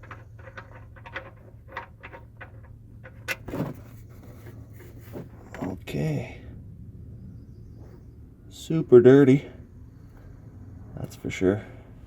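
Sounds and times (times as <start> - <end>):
metal tools clicking and knocking: 0.0 - 3.5
steady low hum: 0.0 - 12.0.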